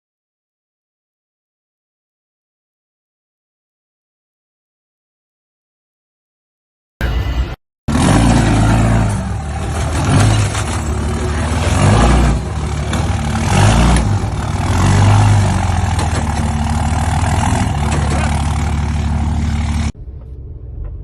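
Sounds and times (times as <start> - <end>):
vehicle engine and road noise: 7.0 - 21.0.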